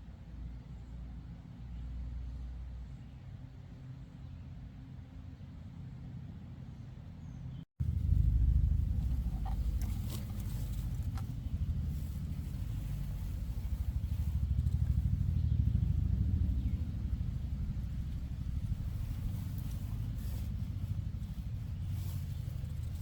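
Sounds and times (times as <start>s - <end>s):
vehicle running rumble: 7.8s - 23.0s.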